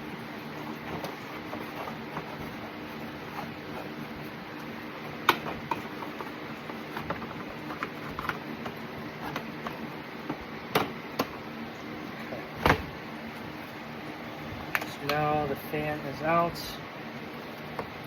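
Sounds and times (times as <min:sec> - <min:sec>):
plastic clicks and knocks: 0:06.9 - 0:11.4.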